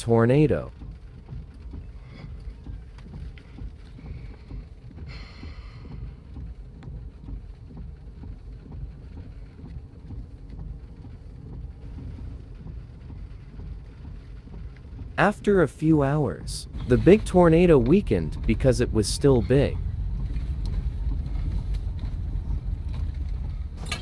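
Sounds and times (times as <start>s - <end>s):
storm wind buffeting microphone: 5.9s - 23.9s.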